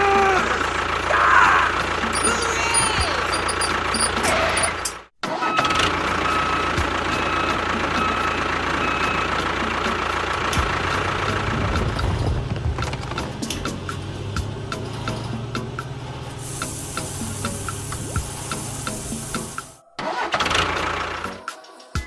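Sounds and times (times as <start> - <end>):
vehicle engine running: 0.7 - 5.0, 5.7 - 19.8
deep hum: 10.6 - 15.1.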